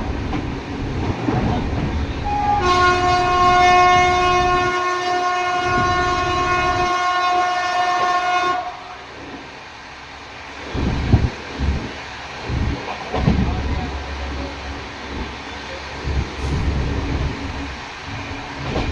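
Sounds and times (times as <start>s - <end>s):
train rumbling: 0.0s - 18.9s
train horn blast: 2.2s - 9.0s.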